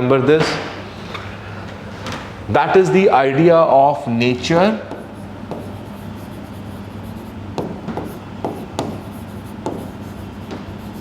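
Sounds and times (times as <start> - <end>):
low electrical hum: 0.0 - 11.0
pen scratching on paper: 4.9 - 11.0
sharp pen taps: 7.6 - 9.0, 9.6 - 9.9.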